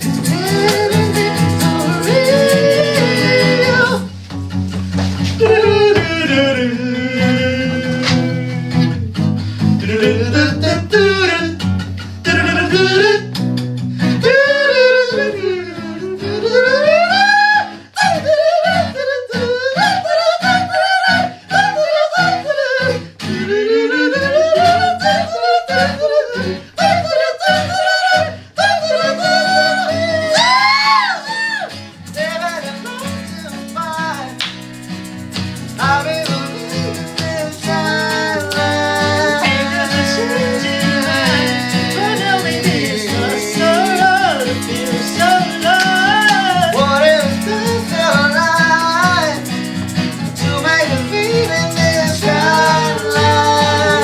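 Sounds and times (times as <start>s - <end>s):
person singing wordless runs: 0.0s - 4.3s, 5.0s - 9.0s, 9.8s - 11.6s, 14.3s - 54.0s
pop-rock band playing: 0.0s - 6.2s.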